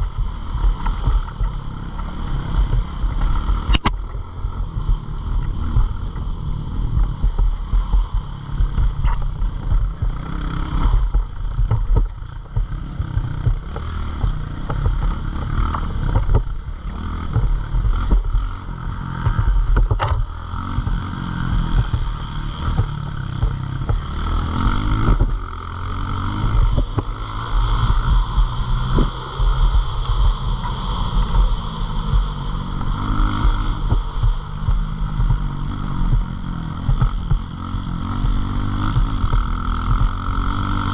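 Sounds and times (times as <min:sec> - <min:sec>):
pit bike engine running: 0:00.0 - 0:40.9
wind buffeting on microphone: 0:27.8 - 0:40.3.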